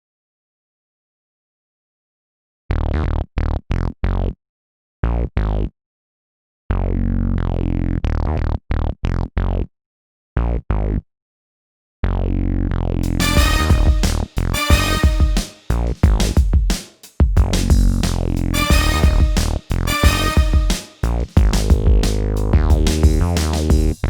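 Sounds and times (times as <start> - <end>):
synthesizer chord stabs: 13.1 - 16.2, 18.5 - 24.0.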